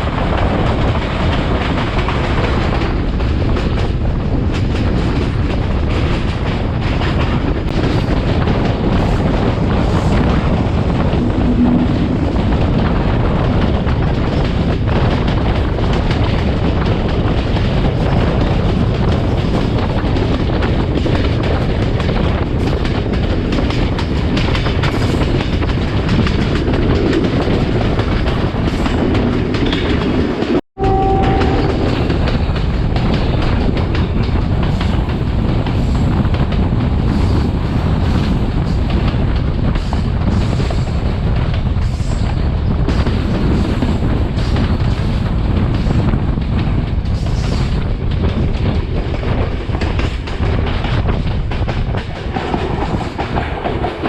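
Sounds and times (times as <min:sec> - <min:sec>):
train wheels rumbling on rails: 0:00.0 - 0:54.0
rushing air: 0:04.0 - 0:22.7.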